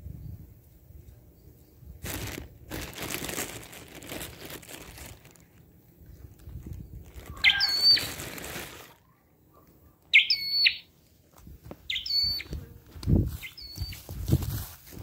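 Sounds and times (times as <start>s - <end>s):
songbird whistling calls: 7.3s - 8.2s, 10.1s - 10.9s, 11.9s - 12.5s, 13.4s - 14.1s.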